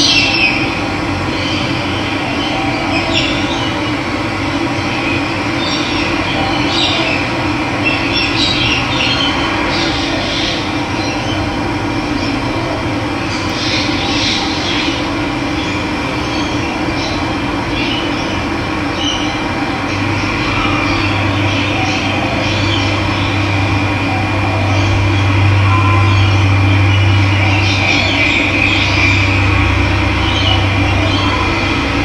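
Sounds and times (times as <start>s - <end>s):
birds chirping: 13.2s - 32.0s.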